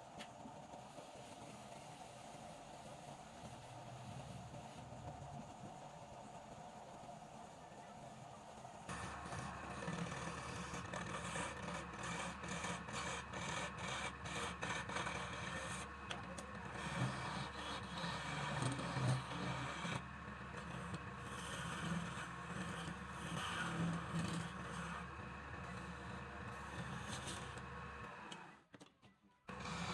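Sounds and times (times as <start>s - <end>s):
turning tool scraping wood: 8.9s - 28.2s, 29.5s - 29.9s
wood lathe running: 8.9s - 28.5s, 29.5s - 29.9s.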